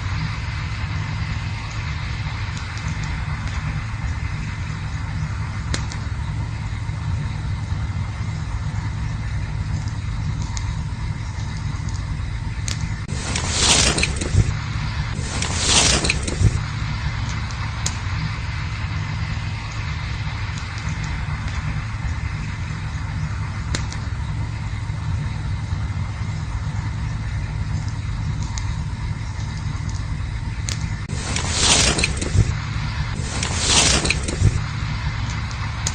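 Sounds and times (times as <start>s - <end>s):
campfire crackling and popping: 0.0s - 35.9s
fire low rumble: 0.0s - 35.9s
hissing rush: 12.5s - 26.2s, 31.0s - 35.9s.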